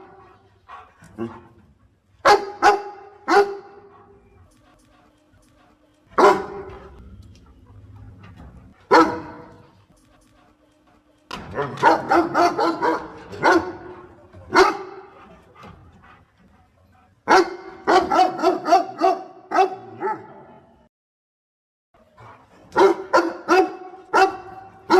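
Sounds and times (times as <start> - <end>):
dog barking: 2.2 - 4.2, 6.2 - 7.0, 8.9 - 9.8, 11.6 - 15.1, 17.2 - 20.5, 22.7 - 24.9.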